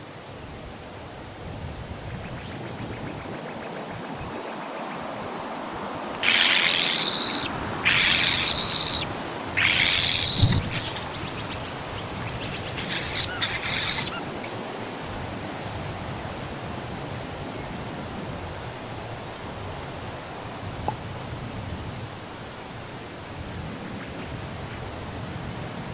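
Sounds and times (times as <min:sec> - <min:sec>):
nestling birds begging calls: 0:06.2 - 0:14.6.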